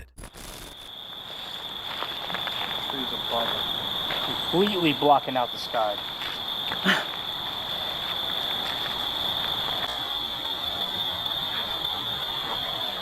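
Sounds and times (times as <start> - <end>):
crickets chirping: 0.3 - 13.0.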